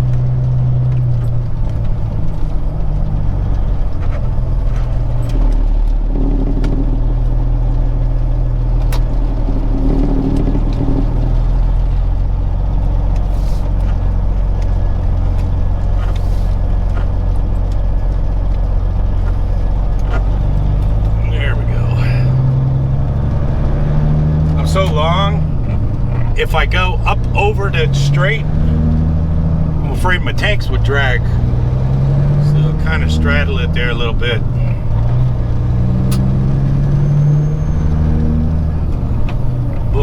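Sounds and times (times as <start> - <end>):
truck diesel engine pulling away: 0.0 - 40.0.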